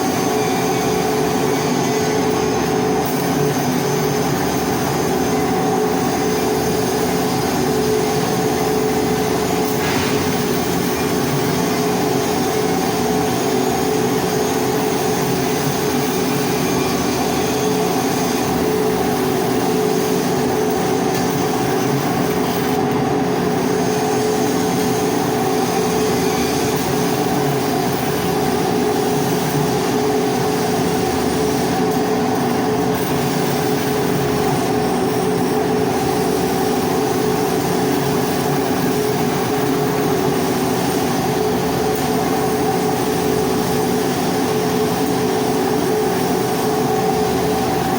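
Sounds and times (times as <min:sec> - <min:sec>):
arc welding hiss: 0:00.0 - 0:47.9
machine hum: 0:08.8 - 0:27.4.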